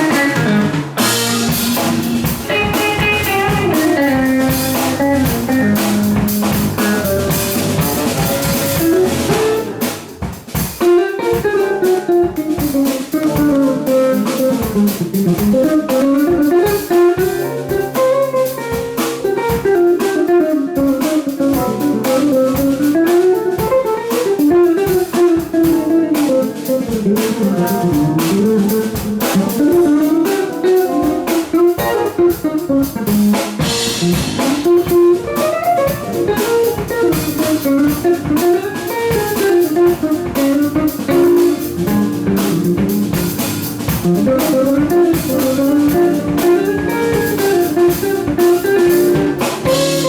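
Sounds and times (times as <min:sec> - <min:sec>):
bass line: 0:00.0 - 0:10.1, 0:33.6 - 0:50.0
drum kit: 0:00.0 - 0:50.0
guitar: 0:00.0 - 0:50.0.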